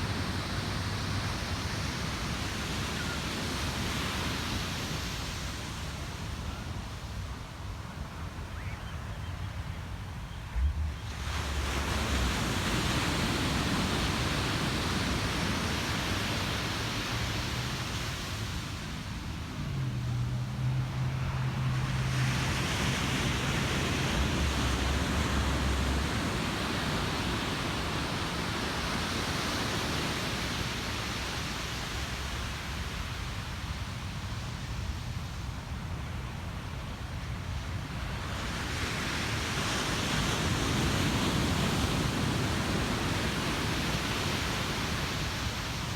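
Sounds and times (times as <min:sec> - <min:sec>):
ocean surf breaking on shore: 0:10.5 - 0:45.9.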